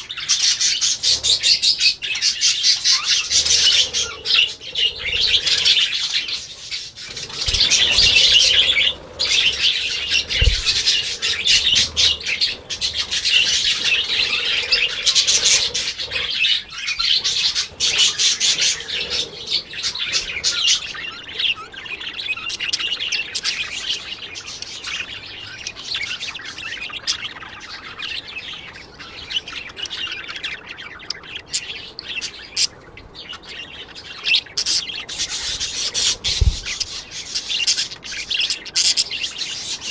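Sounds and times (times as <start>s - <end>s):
parrots chirping and squawking: 0.0s - 39.9s
low thumps: 10.1s - 12.2s.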